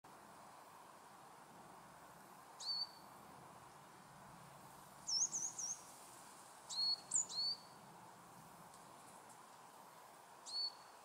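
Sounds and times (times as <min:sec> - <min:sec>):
faint steady background noise: 0:00.0 - 0:11.0
bird chirping: 0:02.6 - 0:03.1, 0:05.0 - 0:05.9, 0:06.7 - 0:07.8, 0:10.4 - 0:11.0.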